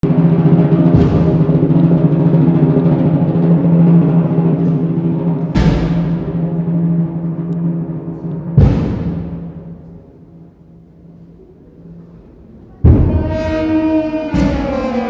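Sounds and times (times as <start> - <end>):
heavy percussion strikes: 0.0 - 10.5, 12.8 - 15.0
band playing slow funeral march: 12.9 - 15.0.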